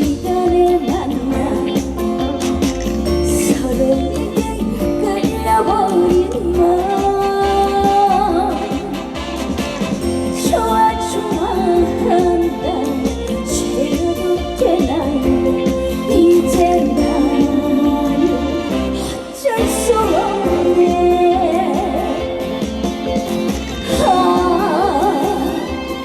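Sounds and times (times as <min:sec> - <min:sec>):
instrumental accompaniment with beat: 0:00.0 - 0:26.0
woman singing slow melody: 0:03.2 - 0:08.8, 0:10.4 - 0:22.6, 0:23.9 - 0:26.0.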